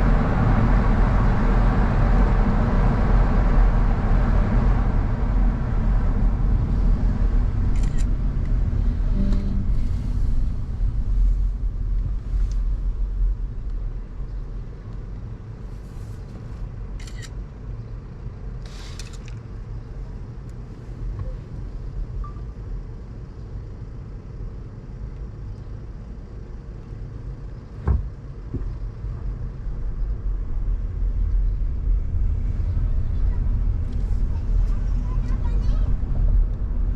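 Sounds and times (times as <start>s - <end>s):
engine and road rumble: 0.0s - 36.9s
brief hisses: 18.6s - 19.2s.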